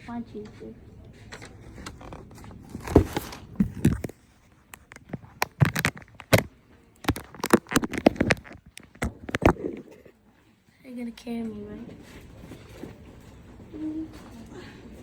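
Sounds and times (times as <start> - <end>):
handling knocks and scrapes: 1.3 - 6.5.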